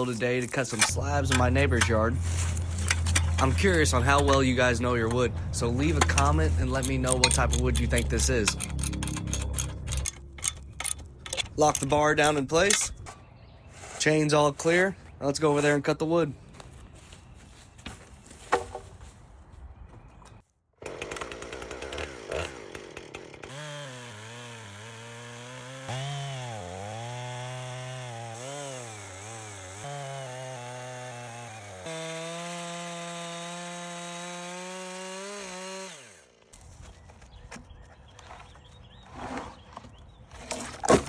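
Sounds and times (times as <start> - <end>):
chainsaw ripping a log: 0.0 - 9.8, 20.8 - 36.8.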